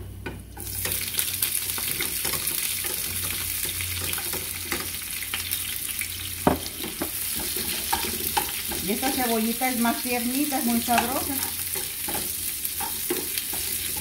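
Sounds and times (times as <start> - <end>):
vegetables sizzling in hot oil: 0.6 - 14.0
spoon scraping a pan: 6.6 - 14.0.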